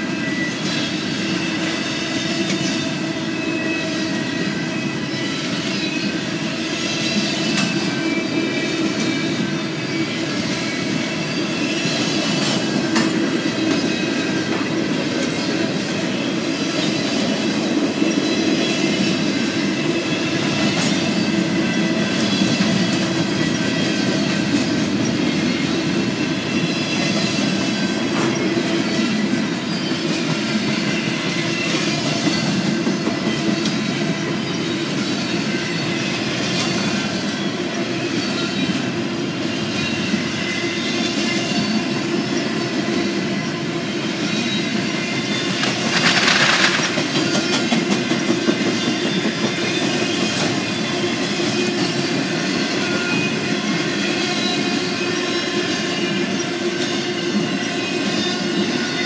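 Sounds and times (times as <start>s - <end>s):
faint high wheel squeal: 0.0s - 12.8s, 48.6s - 59.0s
train wheels rumbling on rails: 0.0s - 59.0s.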